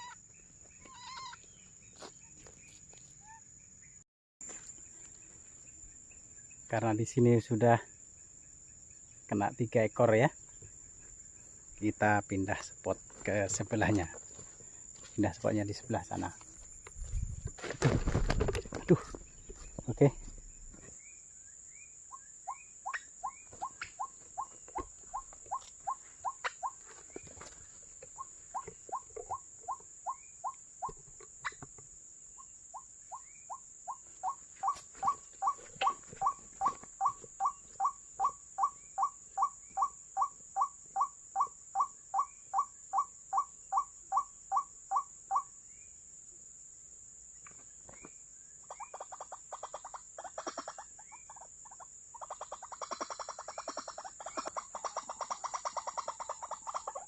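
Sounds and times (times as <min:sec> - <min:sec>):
rapid bird calling: 0:00.0 - 0:03.5, 0:22.1 - 0:31.6, 0:32.4 - 0:45.5, 0:48.6 - 0:57.0.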